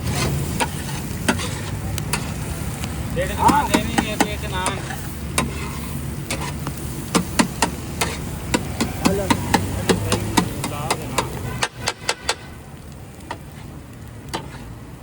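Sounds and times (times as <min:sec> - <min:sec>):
low traffic rumble: 0:00.0 - 0:15.0
metal spatula clanking on griddle: 0:00.1 - 0:02.4, 0:03.3 - 0:12.5, 0:14.3 - 0:14.7.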